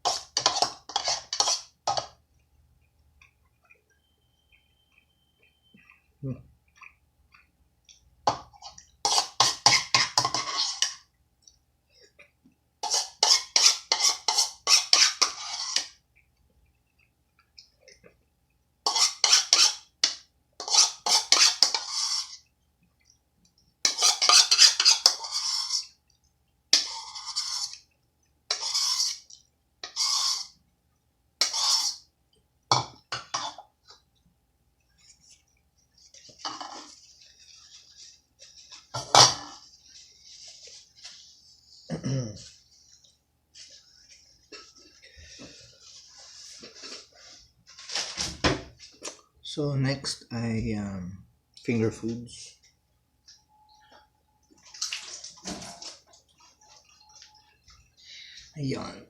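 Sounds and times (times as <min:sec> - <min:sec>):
chewing crunchy cereal: 0:05.4 - 0:09.0.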